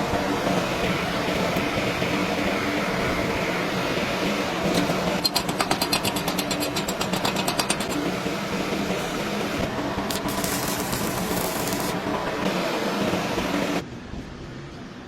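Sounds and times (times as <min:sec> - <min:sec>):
welding sizzling hiss: 0:00.0 - 0:13.8
steady machine hum: 0:00.0 - 0:14.0
welding crackling ticks: 0:04.8 - 0:08.1, 0:10.1 - 0:12.0.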